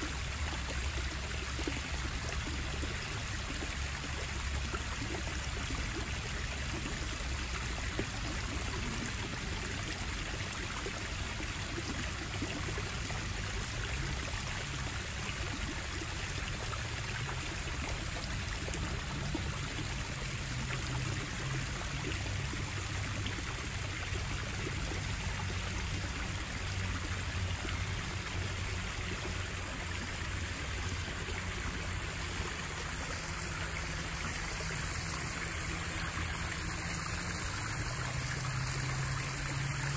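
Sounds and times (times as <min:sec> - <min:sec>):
water spilling over rocks: 0:00.0 - 0:39.9.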